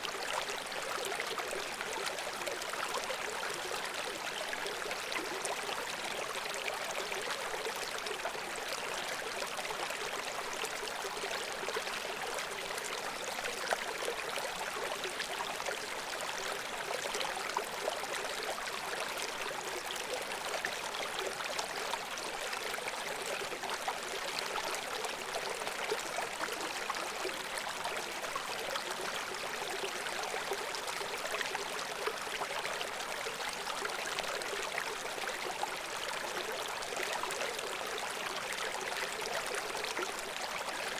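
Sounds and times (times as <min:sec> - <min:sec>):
brook babbling over stones: 0:00.0 - 0:40.9.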